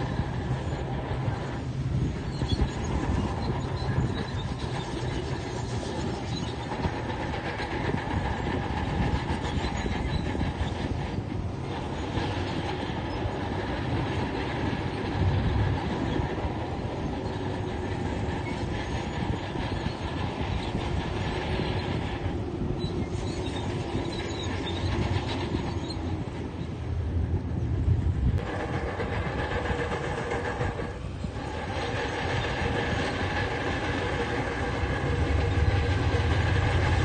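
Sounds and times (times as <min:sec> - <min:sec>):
clatter of steel tracks: 0:00.0 - 0:37.0
diesel engine running under load: 0:00.0 - 0:37.0.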